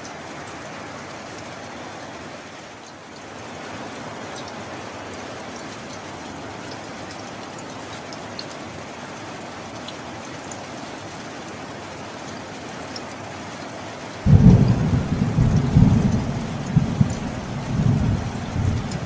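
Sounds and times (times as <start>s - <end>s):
steady rain: 0.0s - 19.0s
dripping water: 12.3s - 19.0s
thunder clap and rumble: 14.3s - 19.0s.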